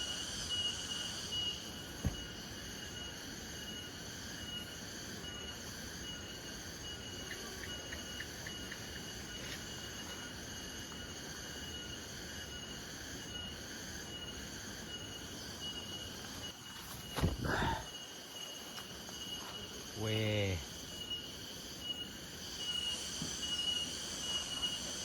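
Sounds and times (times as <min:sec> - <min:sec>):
insects trilling: 0:00.0 - 0:25.0
loud knock and rustle: 0:02.0 - 0:02.3.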